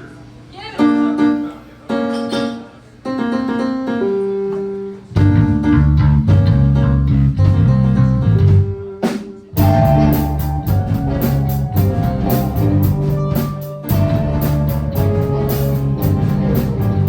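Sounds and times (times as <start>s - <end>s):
drum kit: 4.5s - 17.0s
bass guitar: 5.2s - 17.0s
electric guitar: 5.2s - 17.0s.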